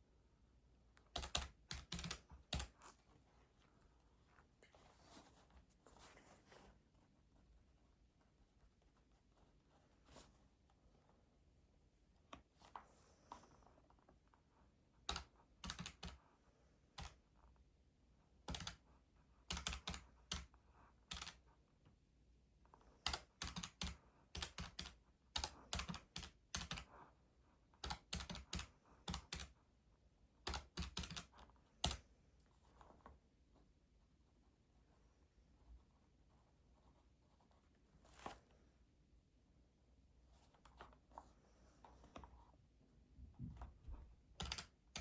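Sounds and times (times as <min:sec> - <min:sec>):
faint typing on keys: 0:00.9 - 0:03.2, 0:12.2 - 0:17.6, 0:18.4 - 0:22.0, 0:22.6 - 0:29.6, 0:30.4 - 0:33.2, 0:43.4 - 0:45.0.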